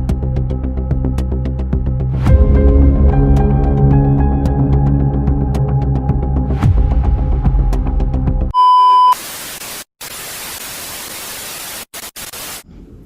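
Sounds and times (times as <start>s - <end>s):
background music: 0.0s - 8.5s
high-pitched beep: 8.6s - 9.2s
tv static hiss: 9.1s - 12.6s.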